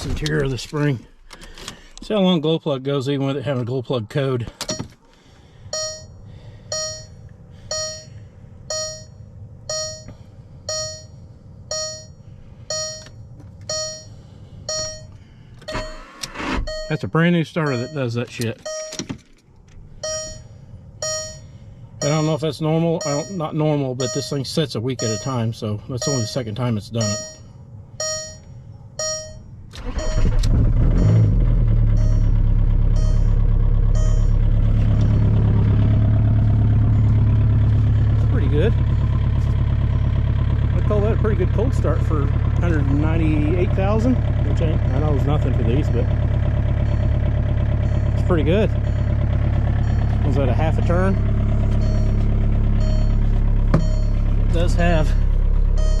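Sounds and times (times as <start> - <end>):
diesel engine idling: 0.0 - 56.0
dashboard warning chime: 5.7 - 19.1, 20.0 - 30.4, 31.9 - 39.2, 42.6 - 56.0.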